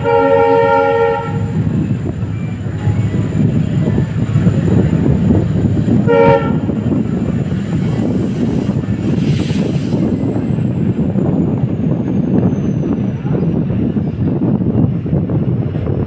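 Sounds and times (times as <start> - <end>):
short horn tone: 0.0 - 1.6, 6.0 - 6.8
diesel train running on rails: 0.0 - 16.0.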